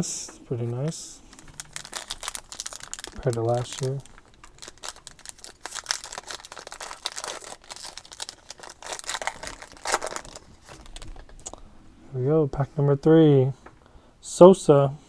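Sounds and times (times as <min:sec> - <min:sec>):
card pack wrapper crinkling: 0:01.2 - 0:11.6.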